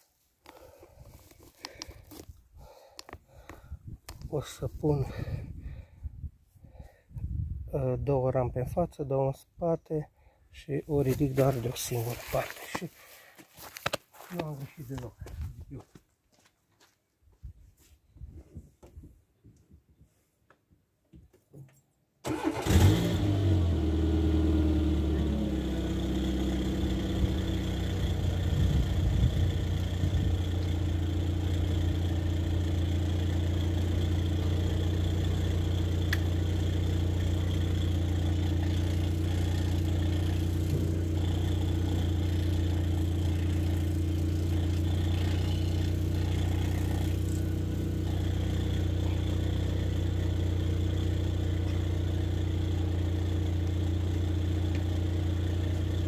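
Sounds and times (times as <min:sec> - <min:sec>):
car engine starting and idling: 0:22.2 - 0:56.0.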